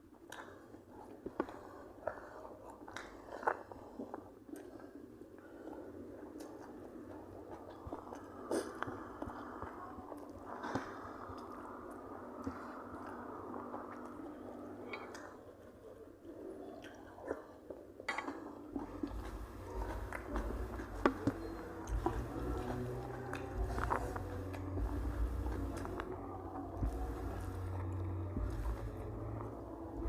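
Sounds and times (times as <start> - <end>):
person chewing food: 0.0 - 30.0
low rumble: 18.8 - 30.0.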